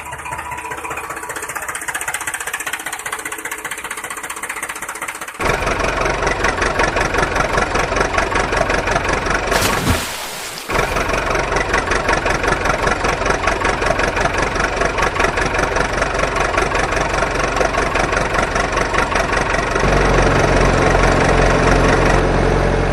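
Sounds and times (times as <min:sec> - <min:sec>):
engine idling with chugging beat: 0:00.0 - 0:09.2.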